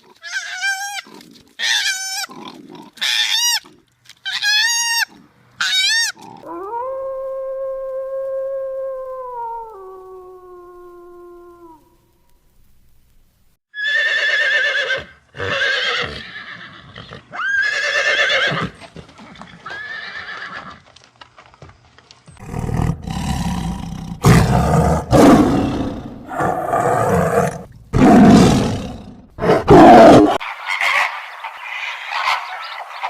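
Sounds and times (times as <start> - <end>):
horse whinnying: 13.8 - 18.8, 19.6 - 20.8.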